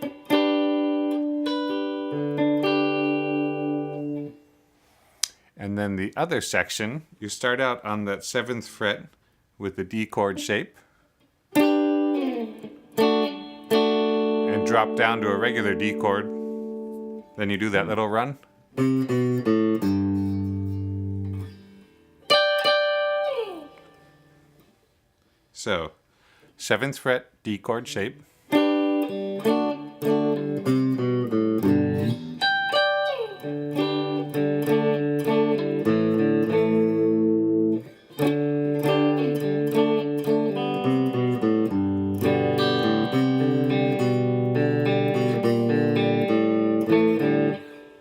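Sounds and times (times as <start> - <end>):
guitar chord ringing: 0.0 - 4.4, 11.5 - 17.4, 18.7 - 24.5, 28.5 - 48.0
picked guitar notes: 0.0 - 4.5, 9.9 - 10.8, 11.5 - 24.6, 27.9 - 48.0.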